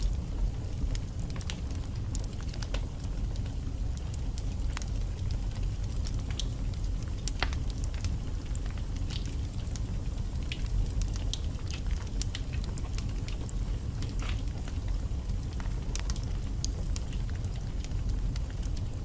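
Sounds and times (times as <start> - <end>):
fire rumbling: 0.0 - 19.0
logs crackling and popping: 0.0 - 19.0.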